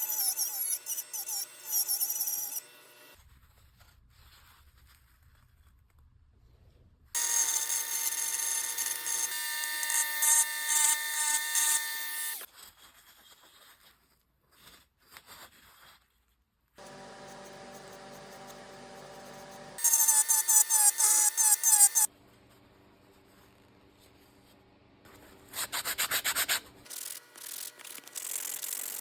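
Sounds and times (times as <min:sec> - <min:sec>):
power tool whining on wood: 0:00.0 - 0:03.2, 0:07.2 - 0:12.4, 0:16.8 - 0:22.1.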